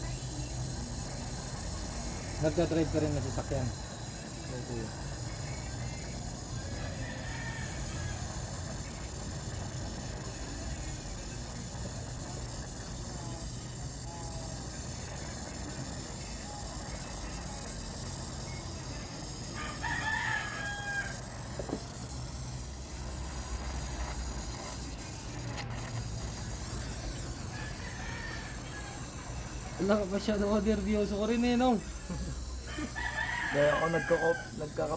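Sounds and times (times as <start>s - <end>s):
rooster crowing: 6.8s - 8.6s, 19.5s - 21.4s, 27.4s - 29.4s, 32.6s - 34.9s.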